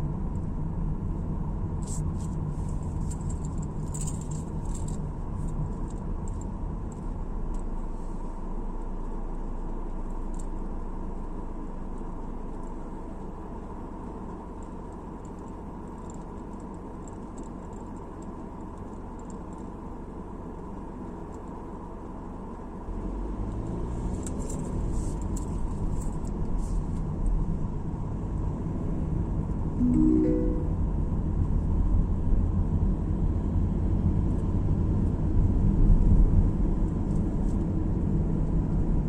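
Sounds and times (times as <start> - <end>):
car road noise: 0.0 - 39.0
short rising tone: 29.8 - 31.1.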